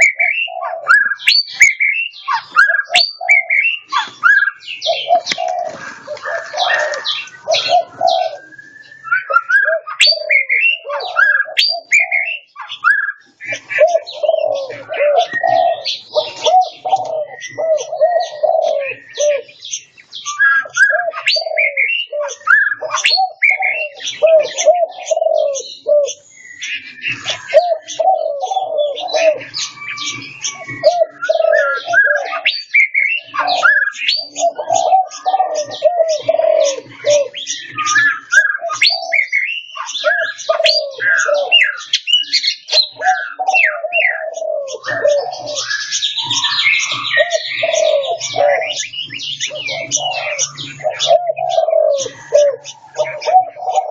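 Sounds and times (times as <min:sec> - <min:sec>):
high chirps and whistles: 0:00.0 - 0:13.6
low cooing notes: 0:04.9 - 0:12.3, 0:13.5 - 0:19.5, 0:20.7 - 0:26.1, 0:27.2 - 0:29.7, 0:30.5 - 0:32.4, 0:33.4 - 0:37.4, 0:43.0 - 0:53.9.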